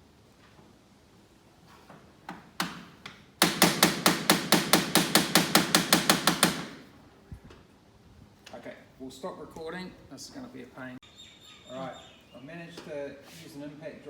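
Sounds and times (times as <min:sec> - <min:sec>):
hammer tapping: 0:02.3 - 0:06.8.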